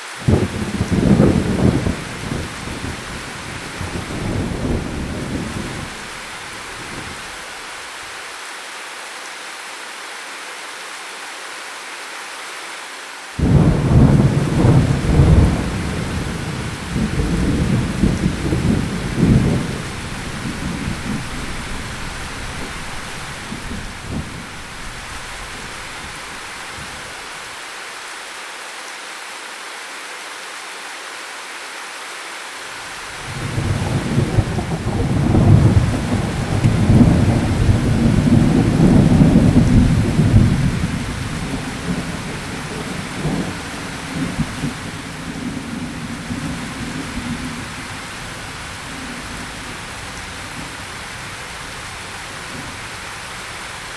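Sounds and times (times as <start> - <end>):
steady rain: 0.0 - 53.9
loud thunderclap: 0.2 - 7.2, 13.4 - 27.1, 33.2 - 50.6
thunder rumbling: 0.2 - 7.4, 13.4 - 27.3, 33.2 - 53.9.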